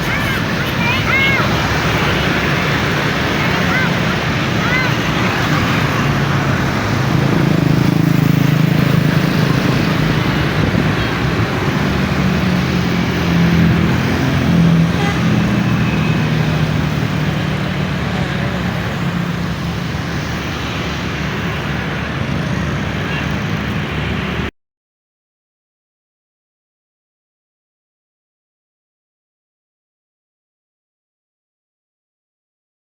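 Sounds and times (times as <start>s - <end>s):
coach diesel engine running: 0.0s - 24.5s
traffic noise: 0.0s - 24.5s.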